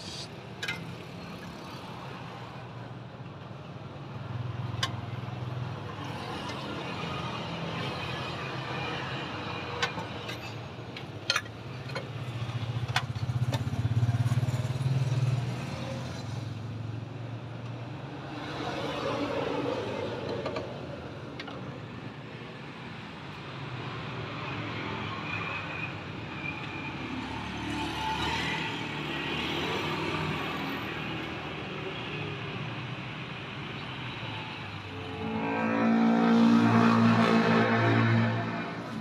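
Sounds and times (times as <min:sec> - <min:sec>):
road traffic noise: 0:00.0 - 0:39.0
vehicle engine passing: 0:35.0 - 0:39.0.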